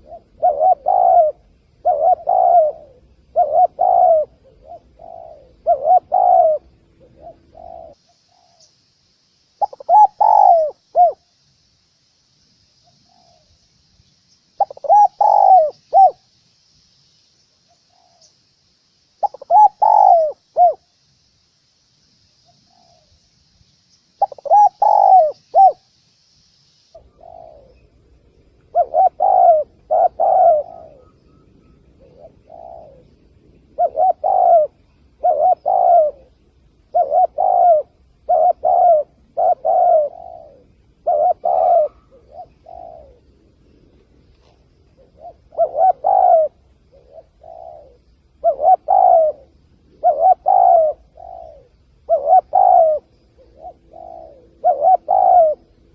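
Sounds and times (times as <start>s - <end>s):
dove cooing: 0.0s - 8.7s, 9.6s - 11.3s, 14.6s - 16.3s, 19.2s - 20.9s, 24.2s - 25.9s, 26.9s - 55.9s
faint low hum: 0.0s - 55.9s.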